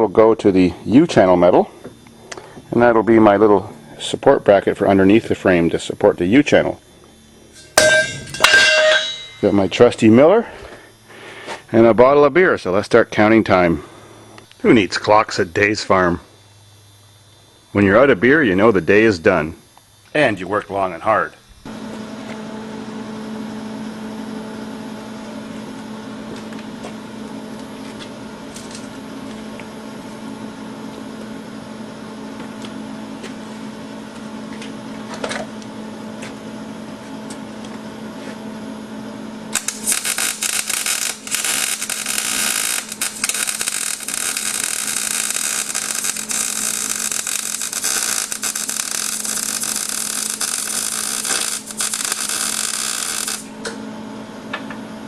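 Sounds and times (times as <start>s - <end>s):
welder humming: 0.0s - 55.0s
welding arc crackling: 4.8s - 12.2s, 39.5s - 53.8s.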